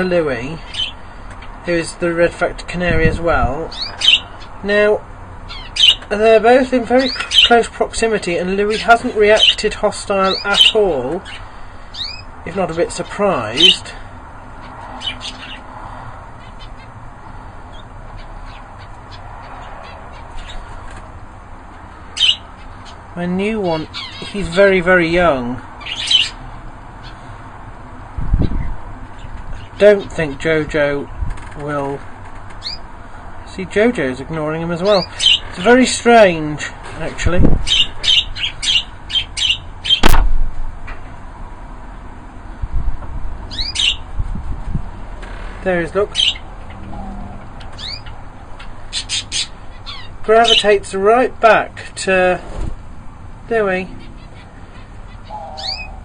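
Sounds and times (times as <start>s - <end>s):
small birds chirping: 0.0s - 27.4s, 28.2s - 40.2s, 43.5s - 44.8s, 45.6s - 52.4s, 53.4s - 56.0s
low background hum: 0.0s - 56.0s
sharp knock: 40.0s - 40.4s.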